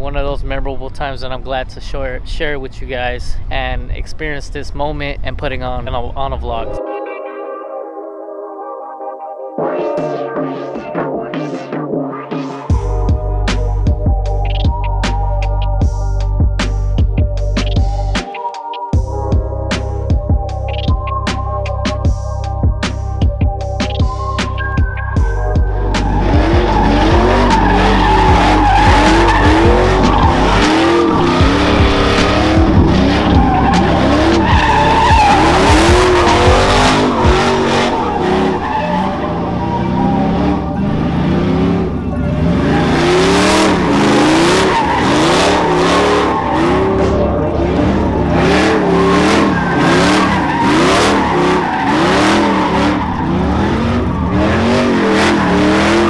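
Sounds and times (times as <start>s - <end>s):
engine revving: 19.7s - 56.0s
tire squeal: 23.6s - 56.0s.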